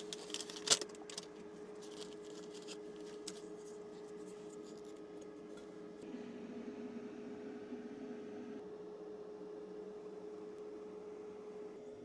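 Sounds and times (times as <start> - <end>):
scratching handling sounds: 0.0 - 6.0
low hum under load: 0.0 - 12.0.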